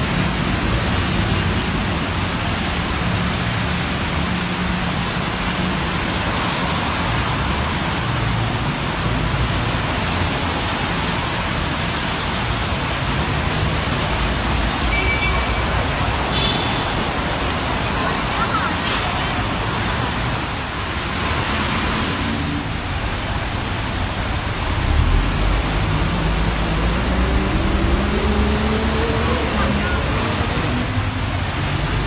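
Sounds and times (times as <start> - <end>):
heavy rain hissing on road: 0.0 - 32.0
car engines running low: 17.4 - 32.0.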